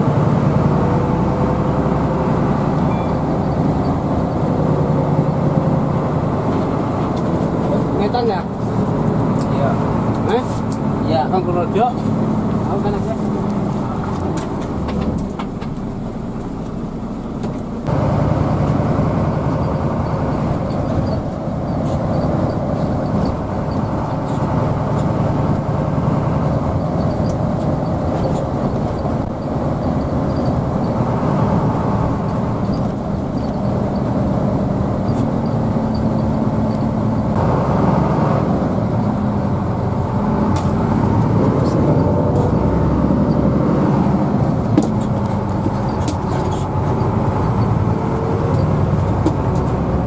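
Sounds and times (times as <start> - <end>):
bus engine drone: 0.0 - 50.0
road noise inside bus: 0.0 - 50.0.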